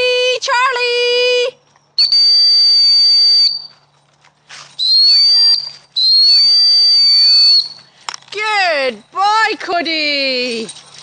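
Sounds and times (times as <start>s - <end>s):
dog whistle blasts: 2.0s - 3.7s, 4.8s - 7.8s.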